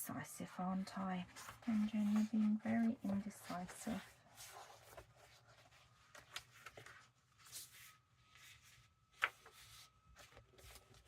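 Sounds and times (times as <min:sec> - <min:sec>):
paper pages rustling: 0:00.4 - 0:11.0.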